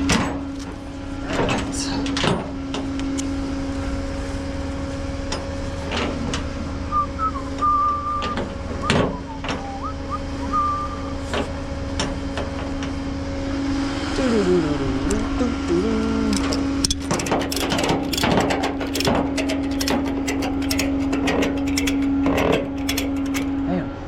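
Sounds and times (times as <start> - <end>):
tow truck idling: 2.5 - 24.0
high whistled notes: 6.9 - 11.2
chains clinking: 16.4 - 23.6.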